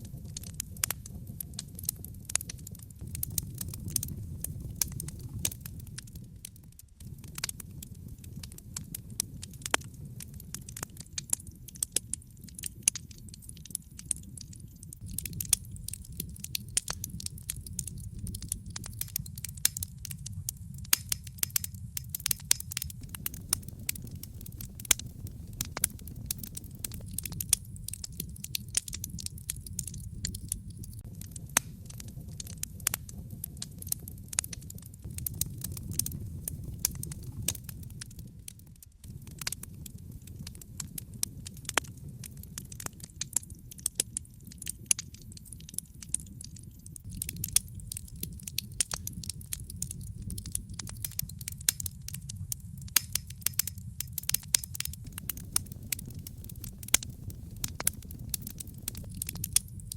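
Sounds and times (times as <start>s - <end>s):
fire crackling and popping: 0.0s - 59.9s
low rumble: 22.2s - 28.5s, 54.9s - 59.9s.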